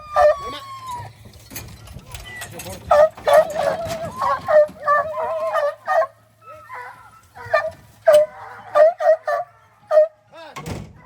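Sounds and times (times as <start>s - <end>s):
hounds howling and yelping: 0.0s - 1.3s, 2.9s - 10.3s.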